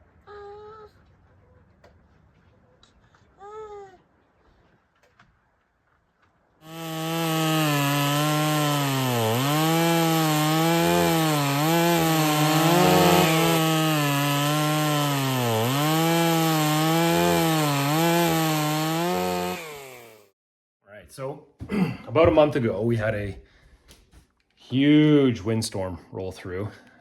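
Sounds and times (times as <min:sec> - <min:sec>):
chainsaw cutting wood: 0:06.6 - 0:20.4.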